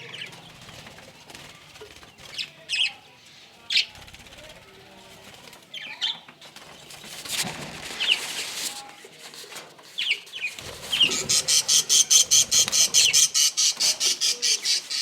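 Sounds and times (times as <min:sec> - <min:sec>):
budgerigars chirping: 0:10.9 - 0:15.0.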